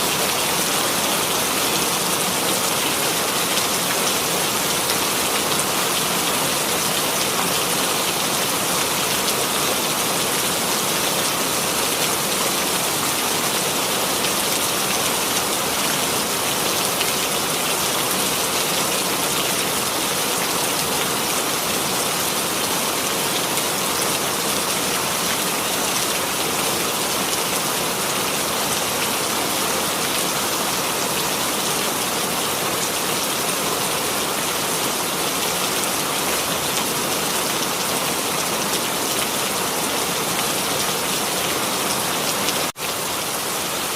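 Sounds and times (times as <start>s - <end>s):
rain falling on a surface: 0.0s - 43.9s.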